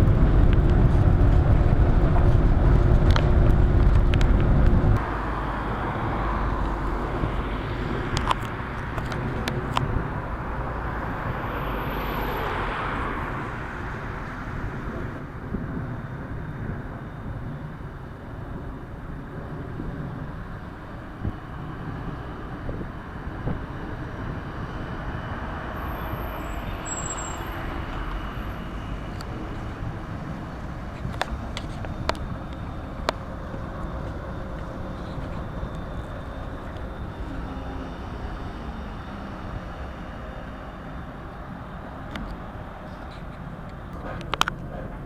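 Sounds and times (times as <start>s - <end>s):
tram rolling rumble: 0.0s - 45.0s
faint high whine: 25.8s - 43.1s.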